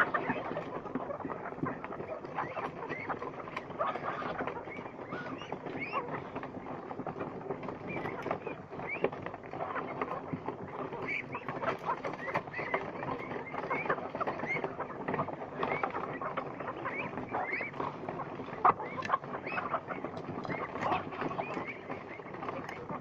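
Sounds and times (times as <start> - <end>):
poultry pecking and dabbling: 0.0 - 23.0
high peeping calls: 7.8 - 23.0.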